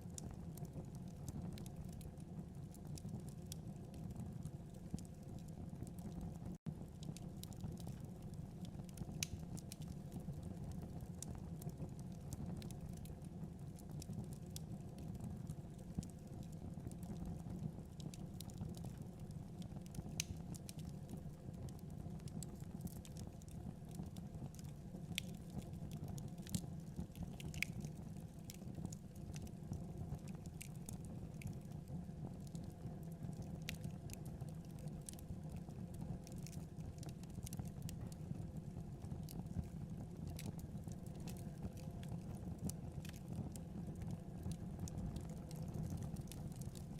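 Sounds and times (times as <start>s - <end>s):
fire crackling and popping: 0.0s - 46.9s.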